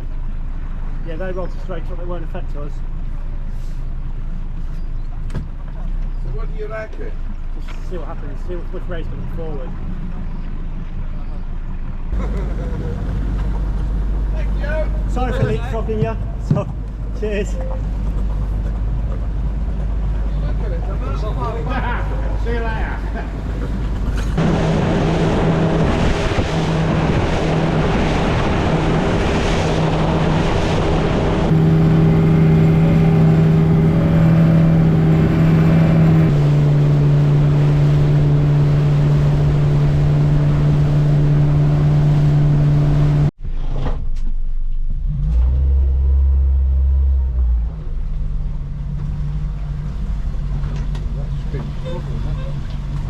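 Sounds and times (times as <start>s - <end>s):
boat engine running: 0.0s - 43.3s, 46.0s - 53.0s
low rumble: 0.0s - 53.0s.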